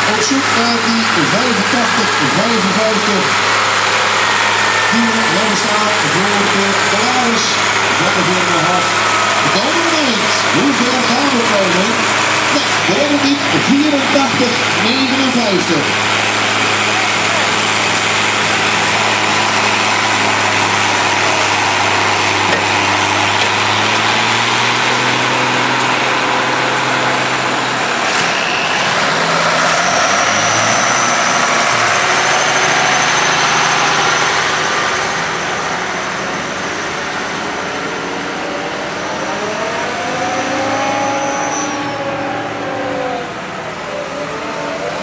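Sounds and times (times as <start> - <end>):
tractor engine running and revving: 0.0 - 45.0.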